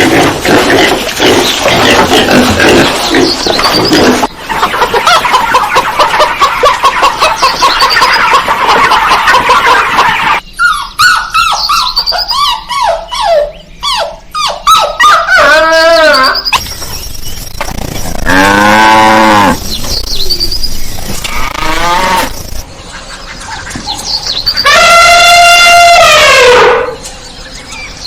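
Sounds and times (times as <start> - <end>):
dogs barking and yelping: 2.5 - 18.5
dog whining: 10.6 - 16.6.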